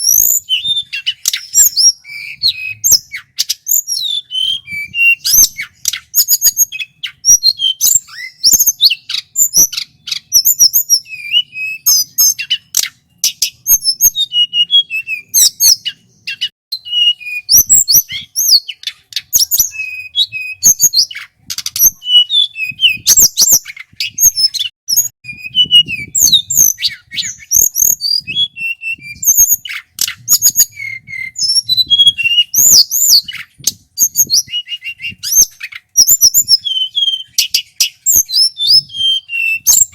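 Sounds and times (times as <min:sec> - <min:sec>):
flycatcher singing: 0:00.0 - 0:39.9
sharp clicking bird notes: 0:18.0 - 0:20.1, 0:20.9 - 0:24.7, 0:29.6 - 0:31.3.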